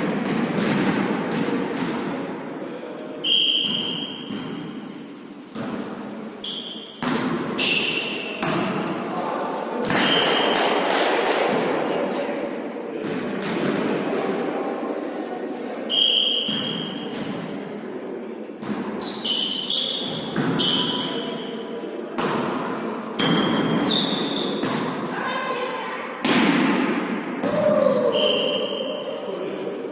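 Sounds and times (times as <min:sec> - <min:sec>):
voices echoing in hall: 0:00.0 - 0:29.9
ball hits and bounces: 0:00.1 - 0:02.2, 0:05.5 - 0:06.0, 0:06.6 - 0:09.0, 0:09.8 - 0:11.8, 0:13.0 - 0:14.0, 0:18.6 - 0:19.0, 0:20.1 - 0:21.2, 0:22.2 - 0:25.1
shoe squeaks on court: 0:06.4 - 0:07.0, 0:19.0 - 0:21.6, 0:23.2 - 0:24.6.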